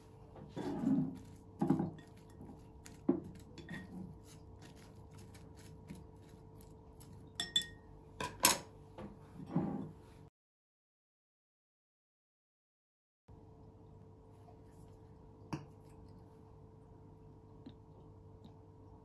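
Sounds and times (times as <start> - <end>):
faint steady hum: 13.3 - 19.0.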